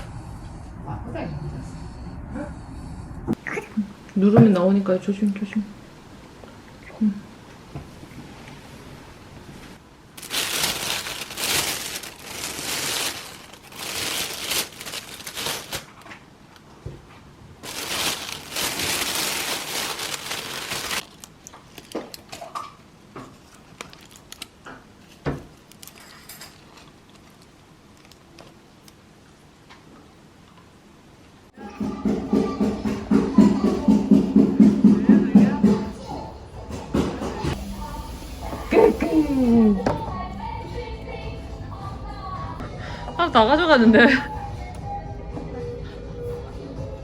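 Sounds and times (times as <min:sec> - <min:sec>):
crinkling rustling noise: 0:09.4 - 0:29.0.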